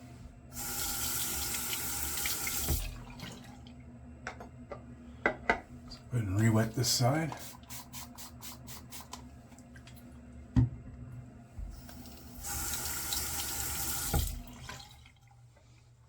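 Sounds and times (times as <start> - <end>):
sink faucet running: 0.5 - 3.6, 6.8 - 9.2, 11.7 - 15.1.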